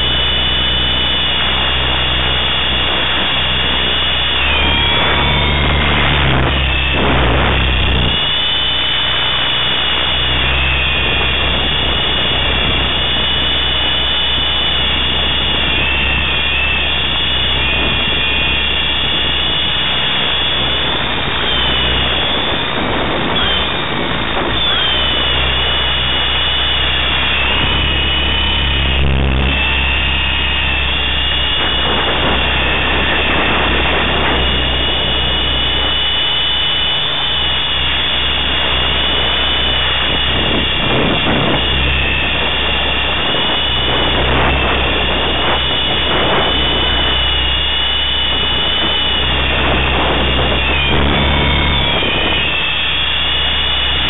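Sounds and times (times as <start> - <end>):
low rotor drone: 0.0 - 54.0
rc helicopter motor whine: 0.0 - 54.0.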